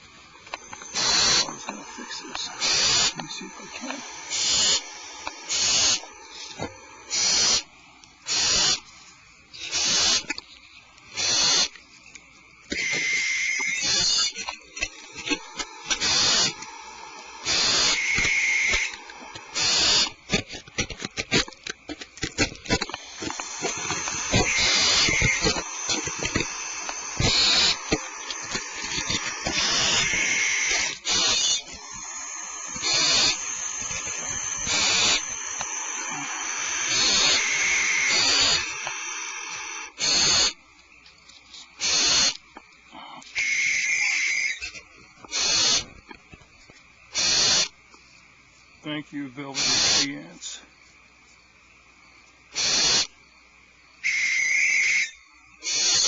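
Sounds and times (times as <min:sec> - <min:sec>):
owl chicks hissing calls: 0:00.0 - 0:11.9, 0:12.7 - 0:21.5, 0:22.4 - 0:40.6, 0:41.5 - 0:46.2, 0:47.1 - 0:47.8, 0:49.4 - 0:50.6, 0:52.5 - 0:53.2, 0:54.0 - 0:56.0
quick clicks: 0:12.7 - 0:40.5.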